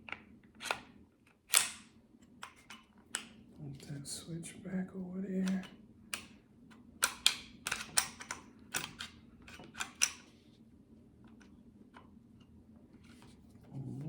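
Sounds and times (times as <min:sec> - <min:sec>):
pistol metallic clicks: 0:01.5 - 0:01.8.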